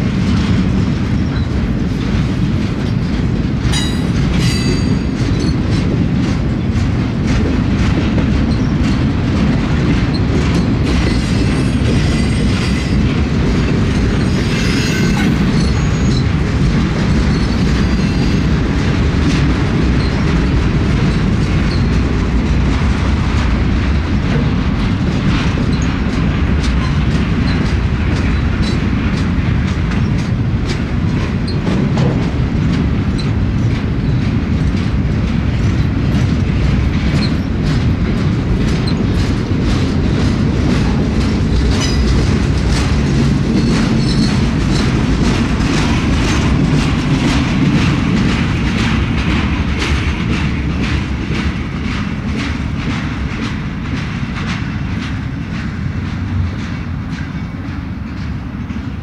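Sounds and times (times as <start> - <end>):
freight train rumbling past: 0.0 - 59.0
wheels clacking over rail joints: 0.0 - 59.0
high-pitched wheel squeals: 14.2 - 16.2.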